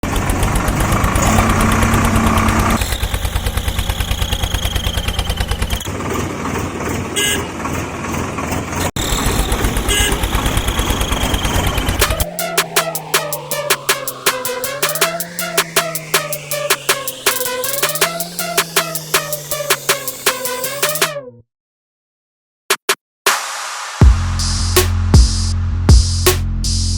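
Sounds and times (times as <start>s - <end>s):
engine chugging: 0.0s - 21.0s
horn-like tone: 9.0s - 19.8s
music with a beat: 12.0s - 21.2s, 22.7s - 26.9s.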